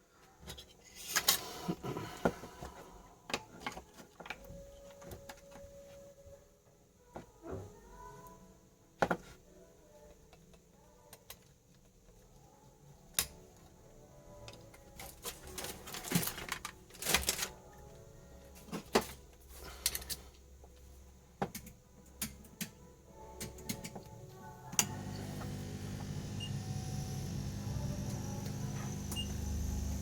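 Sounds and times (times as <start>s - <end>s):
tools and circuit boards clicking: 21.4s - 22.8s, 23.4s - 24.1s.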